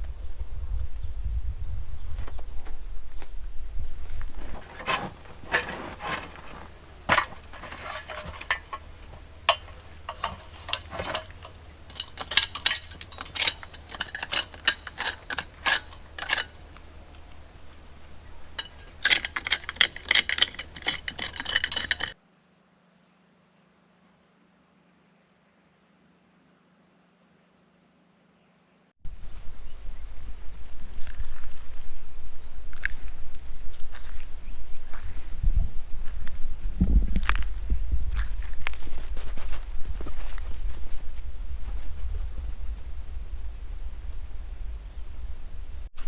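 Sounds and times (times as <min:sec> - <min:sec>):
low steady rumble: 0:00.0 - 0:22.2, 0:29.1 - 0:46.0
stone tools clicking and clinking: 0:06.4 - 0:22.2.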